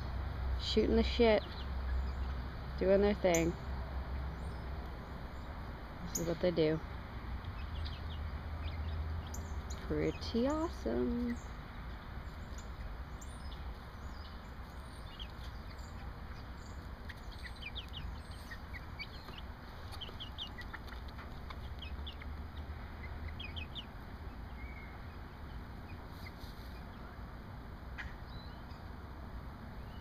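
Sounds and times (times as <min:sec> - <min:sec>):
low background hum: 0:00.0 - 0:30.0
hens clucking and chirping: 0:01.0 - 0:28.9.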